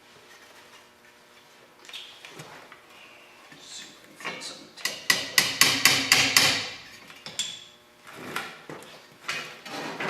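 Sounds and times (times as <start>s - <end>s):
hammer on sheet metal: 4.9s - 6.8s.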